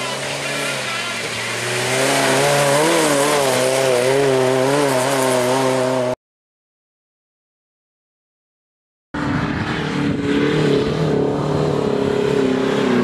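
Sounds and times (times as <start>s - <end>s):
off-road vehicle engine revving: 0.0s - 6.2s, 9.2s - 13.0s.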